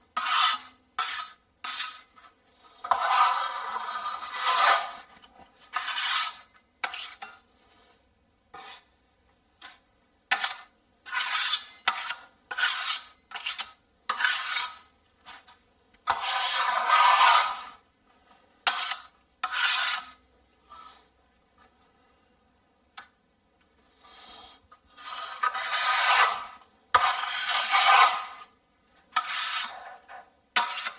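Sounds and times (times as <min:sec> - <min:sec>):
hand sanding drywall: 0:00.2 - 0:05.1, 0:05.7 - 0:07.9, 0:10.3 - 0:14.9, 0:16.1 - 0:17.8, 0:18.7 - 0:21.1, 0:23.9 - 0:30.9.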